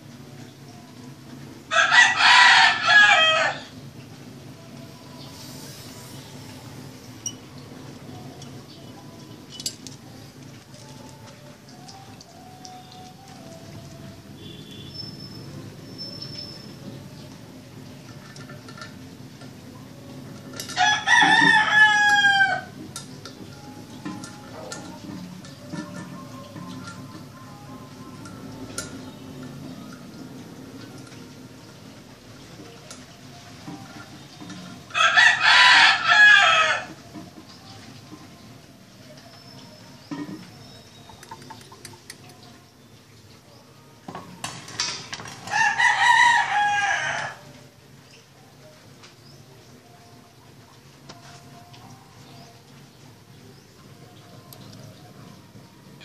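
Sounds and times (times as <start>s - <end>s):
rooster crowing: 1.7s - 3.8s, 20.7s - 22.8s, 34.9s - 37.0s, 45.5s - 47.6s.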